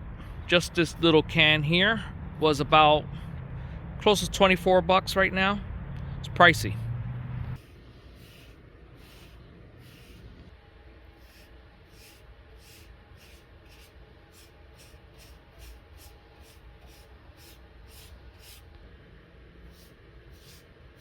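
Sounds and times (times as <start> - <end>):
low steady hum: 0.0 - 21.0
paintbrush swishing on wood: 7.6 - 10.4, 11.1 - 18.7, 19.7 - 21.0.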